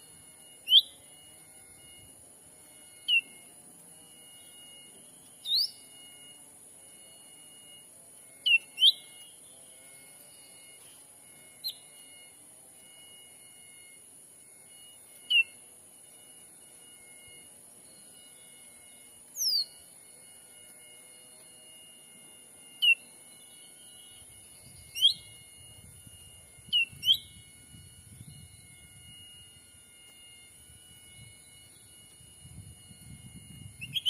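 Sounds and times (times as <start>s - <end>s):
whistled bird calls: 0.0s - 1.2s, 2.8s - 3.5s, 4.1s - 6.4s, 8.4s - 9.6s, 10.3s - 12.3s, 14.8s - 15.6s, 16.8s - 20.0s, 22.6s - 34.0s
high insect drone: 0.0s - 34.0s.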